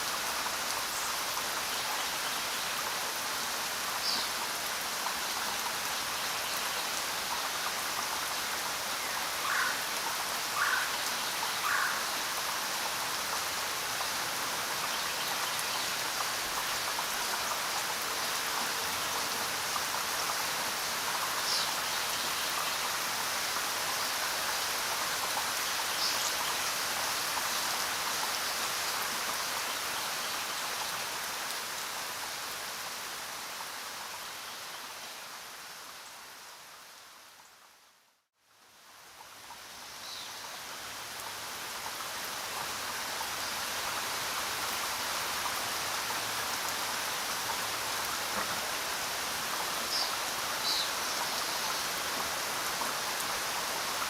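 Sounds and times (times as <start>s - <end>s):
rain pattering: 0.0s - 34.3s, 38.7s - 54.0s.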